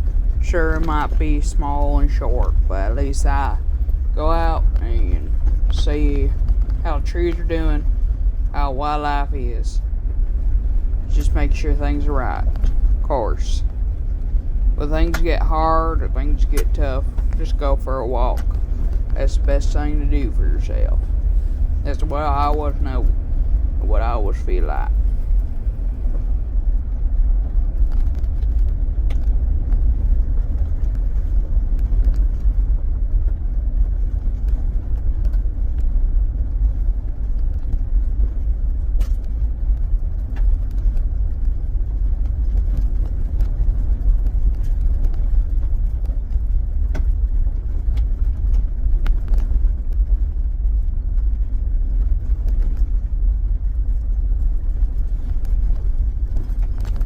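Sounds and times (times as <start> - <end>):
car engine and road noise: 0.0 - 37.2.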